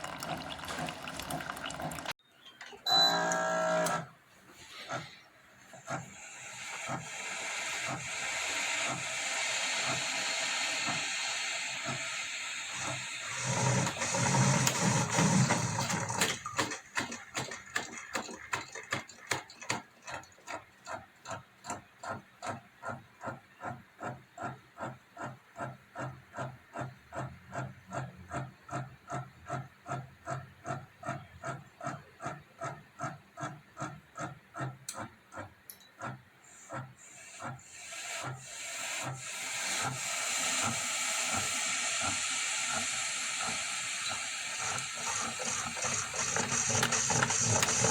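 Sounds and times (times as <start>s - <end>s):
coffee maker hissing and gurgling: 0.0s - 2.2s, 6.0s - 16.4s, 36.5s - 47.9s.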